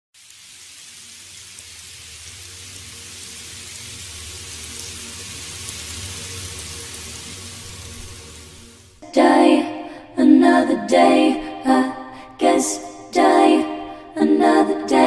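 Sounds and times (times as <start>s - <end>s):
rain falling: 0.2s - 9.0s.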